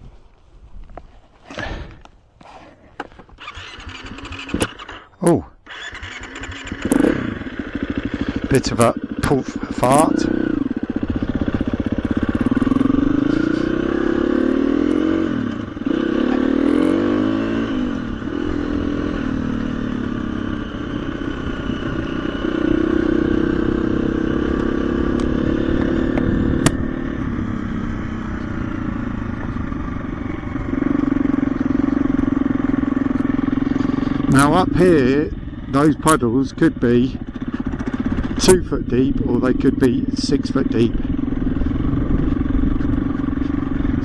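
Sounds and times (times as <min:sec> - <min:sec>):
dirt bike engine revving: 0:03.4 - 0:44.0
sharp click: 0:26.6 - 0:26.8.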